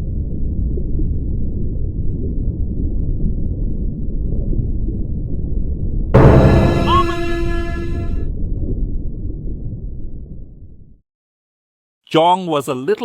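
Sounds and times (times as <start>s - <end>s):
dramatic music sting: 6.2s - 8.2s
low rumble: 6.2s - 8.8s.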